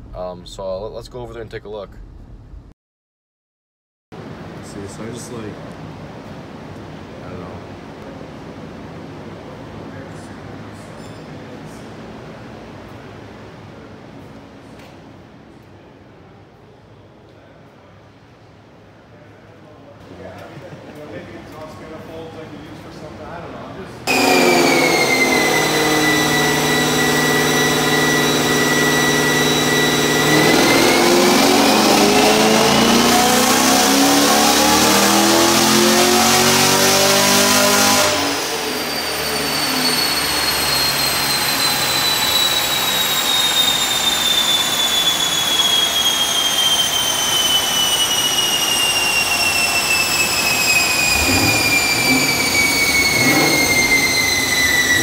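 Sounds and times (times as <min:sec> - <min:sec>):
dyno rollers whining: 0:24.0 - 0:55.0
car engine revving on dyno: 0:24.1 - 0:55.0.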